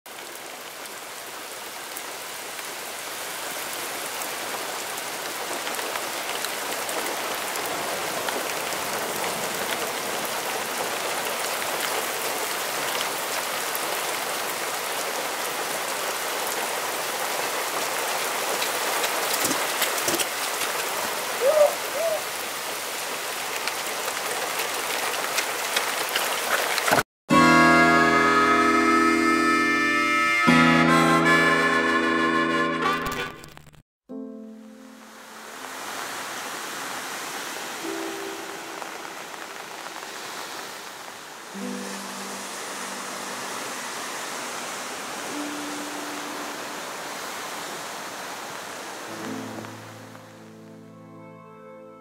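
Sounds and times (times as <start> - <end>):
steady rain falling: 0.1 - 27.4, 34.6 - 51.0.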